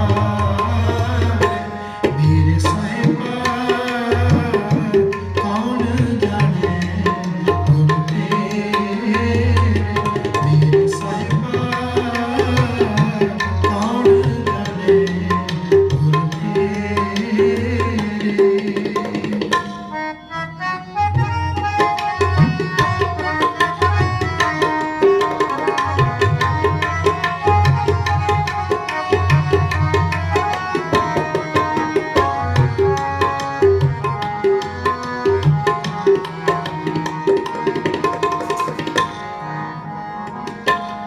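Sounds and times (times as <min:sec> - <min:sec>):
harmonium held notes: 0:00.0 - 0:41.0
tabla drum strokes: 0:21.4 - 0:39.3.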